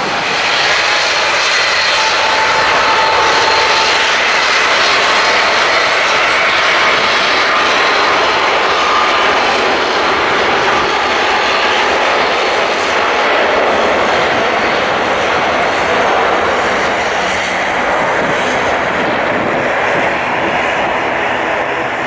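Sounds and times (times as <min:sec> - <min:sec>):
airliner engines roaring: 0:00.0 - 0:22.0.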